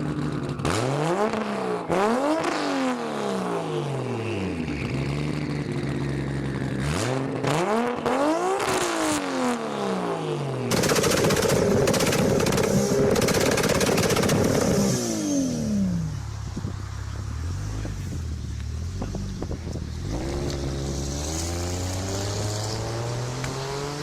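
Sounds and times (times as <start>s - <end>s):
car engine revving with crackling: 0.0s - 24.0s
engine idling with pops: 10.7s - 14.8s, 17.8s - 20.6s.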